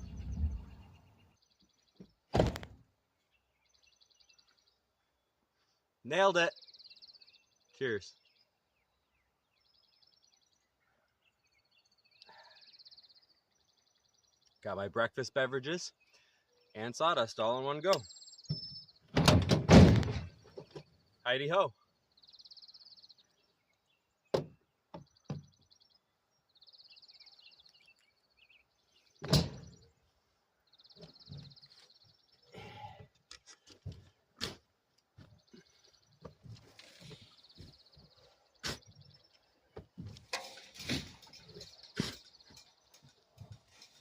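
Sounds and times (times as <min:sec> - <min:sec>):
birds chirping: 0:00.0 - 0:44.0
knocks and thumps: 0:18.5 - 0:20.9.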